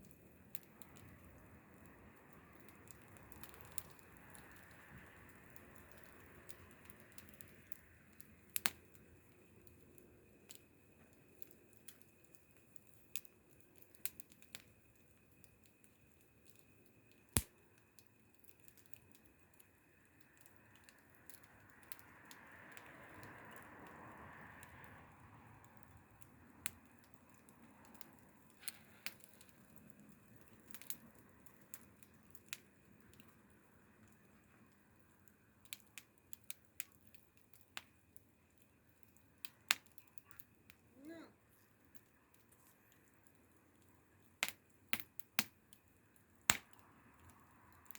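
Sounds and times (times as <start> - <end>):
faint steady hiss: 0.0 - 47.9
wood fire crackling: 0.0 - 47.9.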